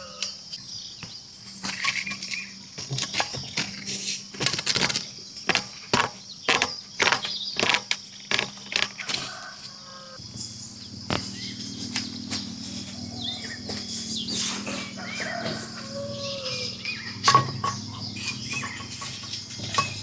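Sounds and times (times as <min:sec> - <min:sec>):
sharp knocks: 0:04.7 - 0:09.0, 0:11.1 - 0:11.4.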